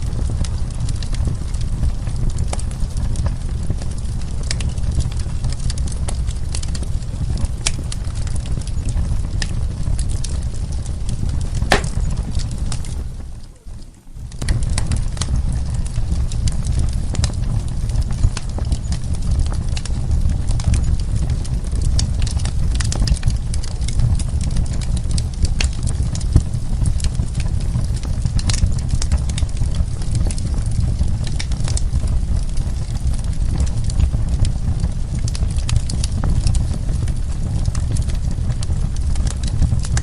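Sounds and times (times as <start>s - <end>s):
wood fire crackling: 0.0s - 40.0s
sharp pops and snaps: 11.7s - 12.2s.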